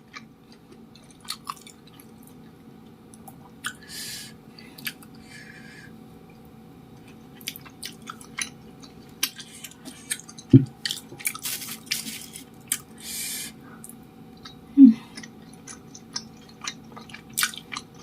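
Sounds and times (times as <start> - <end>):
chewing with wet mouth clicks: 0.1 - 2.4, 7.0 - 12.0, 13.8 - 14.6, 15.2 - 18.0.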